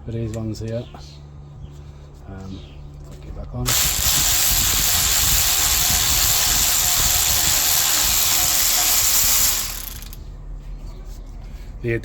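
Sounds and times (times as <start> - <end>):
tool running with loud hiss: 3.7 - 10.2.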